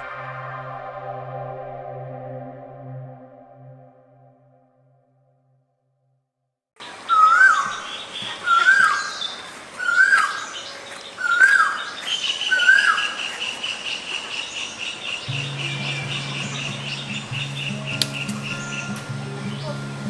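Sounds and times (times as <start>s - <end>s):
steady high trill: 0.0s - 5.3s
bird rising call: 7.0s - 13.5s.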